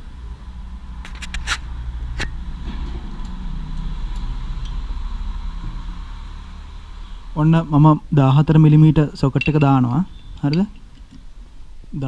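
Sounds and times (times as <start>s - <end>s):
tool clink: 9.3s - 11.1s.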